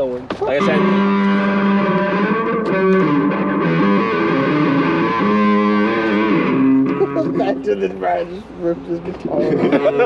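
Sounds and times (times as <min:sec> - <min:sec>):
guitar held notes: 0:00.4 - 0:10.0.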